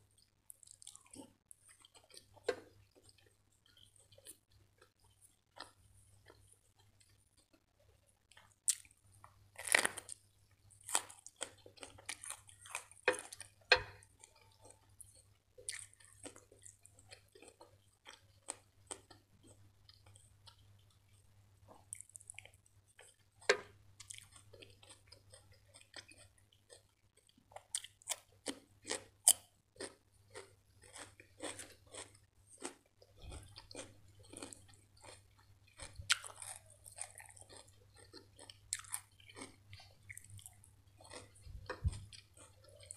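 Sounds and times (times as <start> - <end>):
wet chewing: 0.2 - 42.9
crisp vegetable crunches: 9.5 - 10.2, 35.8 - 42.9.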